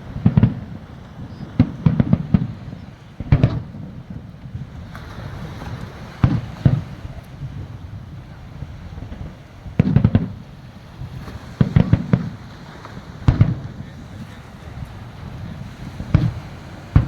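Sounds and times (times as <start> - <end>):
fireworks shells bursting: 16.0 - 17.0.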